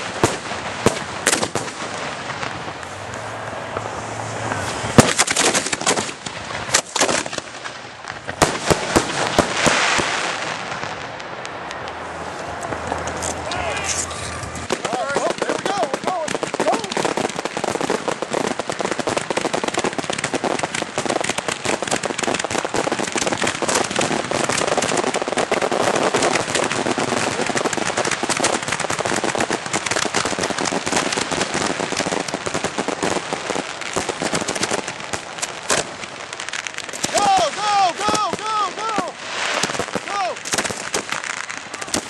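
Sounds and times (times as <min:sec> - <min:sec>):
fireworks barrage crackling: 0:00.0 - 0:42.0.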